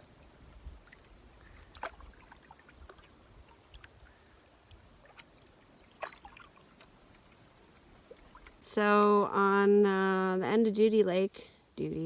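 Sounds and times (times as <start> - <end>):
water splashing and dripping: 0.1 - 8.6
paddle strokes: 0.2 - 8.6.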